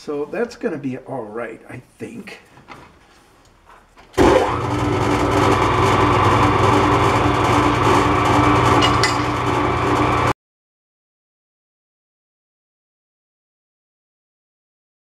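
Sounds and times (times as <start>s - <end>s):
metal lathe motor humming: 4.2s - 10.3s.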